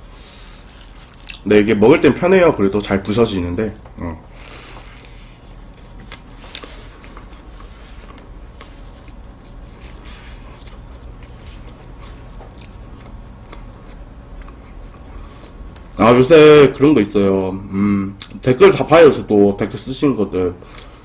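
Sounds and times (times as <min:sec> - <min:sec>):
chewing crisp pastry: 0:00.1 - 0:16.1, 0:18.2 - 0:18.6.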